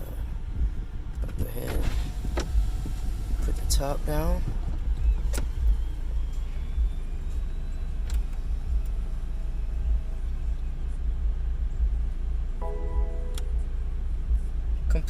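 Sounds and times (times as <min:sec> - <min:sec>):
short electronic tone: 0:12.6 - 0:13.7.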